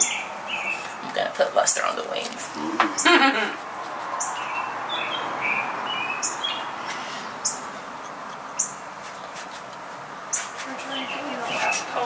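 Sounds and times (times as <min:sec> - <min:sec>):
bird chirps: 0:04.2 - 0:07.8, 0:08.5 - 0:08.8.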